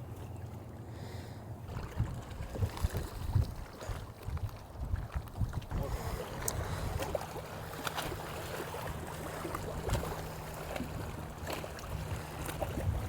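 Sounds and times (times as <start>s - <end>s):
water around boat: 0.0s - 13.0s
wind rumbling on microphone: 1.7s - 7.3s, 9.4s - 13.0s.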